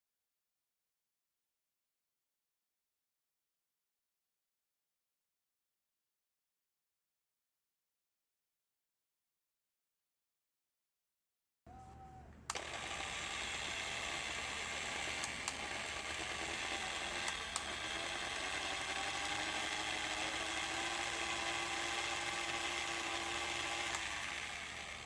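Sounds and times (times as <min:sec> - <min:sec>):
angle grinder motor whirring: 0:12.4 - 0:25.0
angle grinder switch click: 0:12.5 - 0:12.9, 0:14.8 - 0:18.2.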